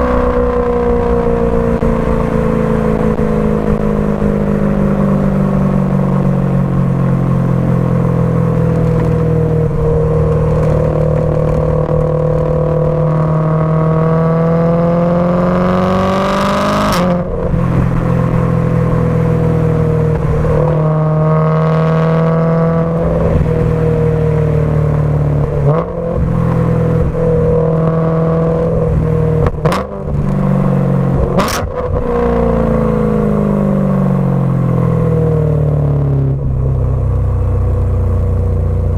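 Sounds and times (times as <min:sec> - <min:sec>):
car engine revving loudly: 0:07.9 - 0:35.6
exhaust cracks: 0:08.5 - 0:14.2.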